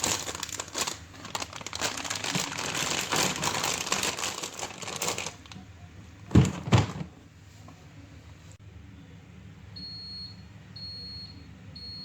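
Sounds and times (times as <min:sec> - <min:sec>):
plastic packets crinkling: 0:00.0 - 0:05.6.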